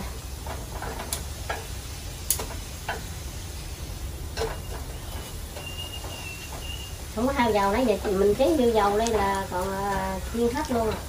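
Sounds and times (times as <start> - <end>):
fritters frying in oil: 0.0 - 11.0
sharp clicks and pops: 2.3 - 3.0.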